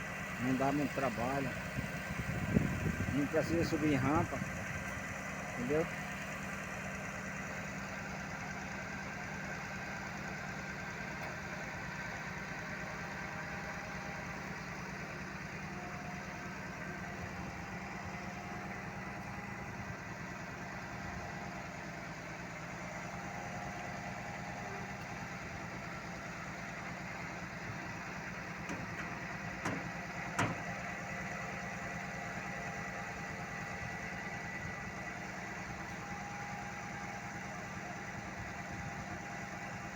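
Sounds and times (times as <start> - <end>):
diesel engine idling: 0.0 - 39.9
sharp knocks: 28.7 - 30.6.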